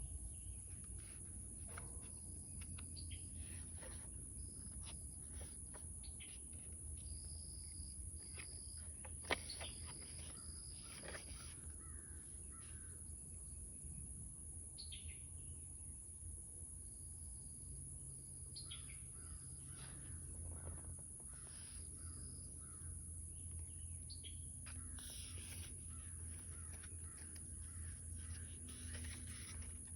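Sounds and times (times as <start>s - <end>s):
paper pages rustling: 0.7s - 11.7s, 24.7s - 29.9s
page turning clicks: 8.2s - 11.6s, 24.7s - 29.9s
birds calling: 18.6s - 29.9s.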